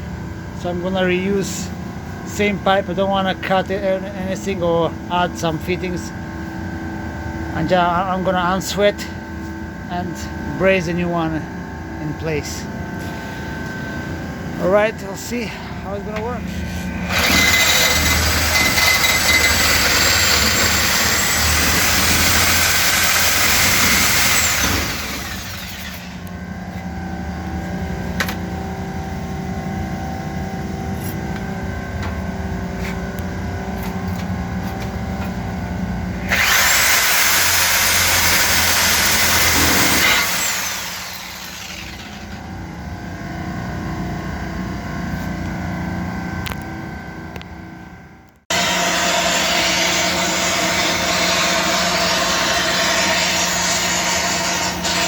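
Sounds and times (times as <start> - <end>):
steady machine hum: 0.0 - 55.0
motor winding down whine: 17.0 - 26.4, 36.2 - 42.5
reciprocating saw cutting pipe: 17.1 - 26.3, 36.2 - 42.4, 48.5 - 55.0.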